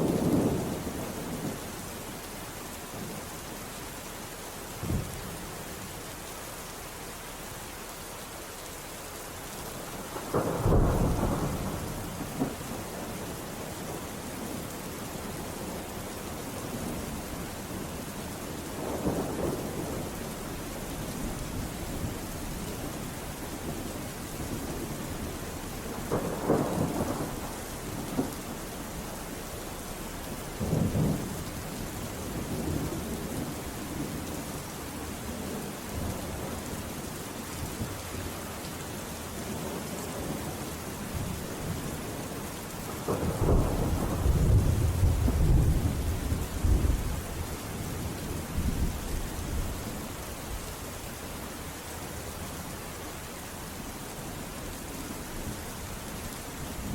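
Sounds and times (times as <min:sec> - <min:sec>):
thunder rumbling: 0:00.0 - 0:01.6, 0:10.1 - 0:13.2, 0:18.7 - 0:29.2, 0:39.5 - 0:49.9
heavy rain: 0:00.0 - 0:56.9.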